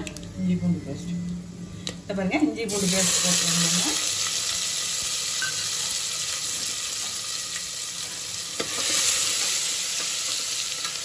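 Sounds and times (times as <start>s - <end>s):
spices sizzling in hot oil: 2.7s - 11.0s.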